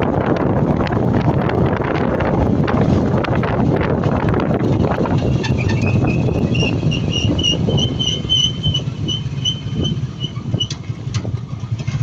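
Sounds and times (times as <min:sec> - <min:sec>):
motorcycle engine and wind rumble: 0:00.0 - 0:12.0
high-pitched pulsing chirp: 0:05.8 - 0:10.4.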